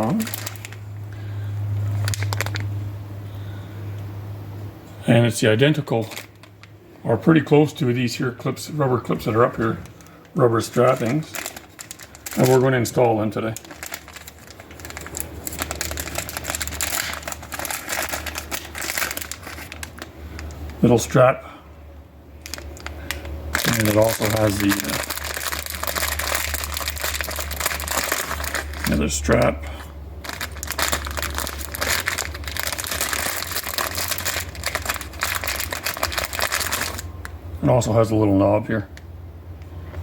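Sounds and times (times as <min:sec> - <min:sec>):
packaging crinkling: 0:00.0 - 0:02.8, 0:06.0 - 0:06.8, 0:09.2 - 0:21.2, 0:22.4 - 0:37.3.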